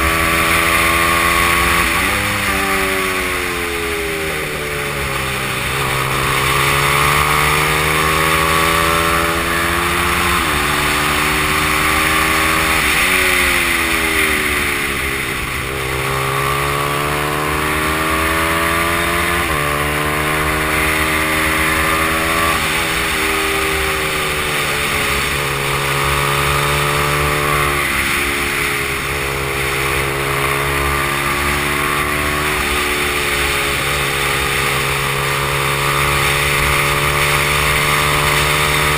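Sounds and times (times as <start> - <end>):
small motorbike engine revving: 0.0 - 38.9.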